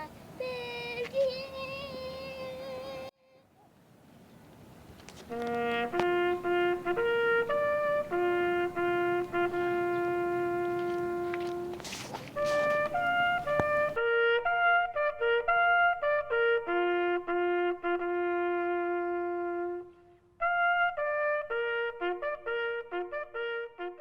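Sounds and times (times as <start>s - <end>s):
trumpet melody: 5.2s - 24.0s.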